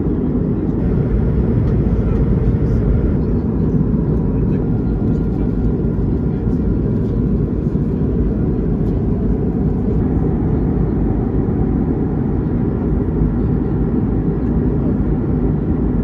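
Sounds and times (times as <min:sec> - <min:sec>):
airliner cabin rumble: 0:00.0 - 0:15.4
faint steady hum: 0:00.8 - 0:05.2.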